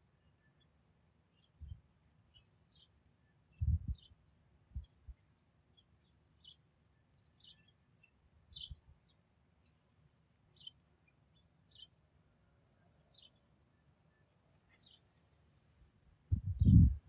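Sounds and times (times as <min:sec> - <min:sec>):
faint high bird chirps: 0:00.0 - 0:17.0
soft low bump: 0:16.3 - 0:17.0.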